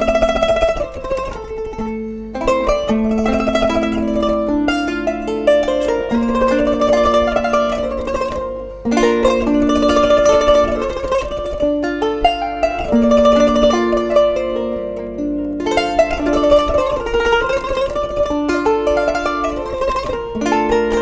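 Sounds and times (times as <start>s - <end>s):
plucked zither melody: 0.0s - 21.0s.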